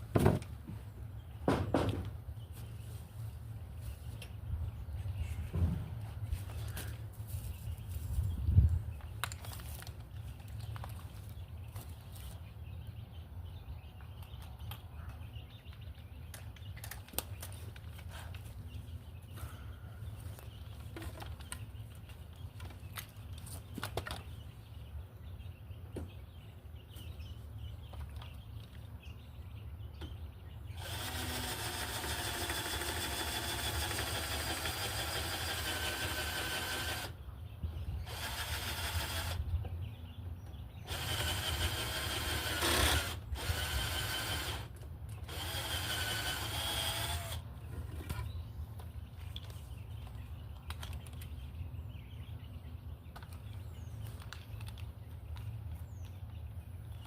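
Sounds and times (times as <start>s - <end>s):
electric power drill running: 30.8s - 37.2s, 38.0s - 39.4s, 40.9s - 47.4s.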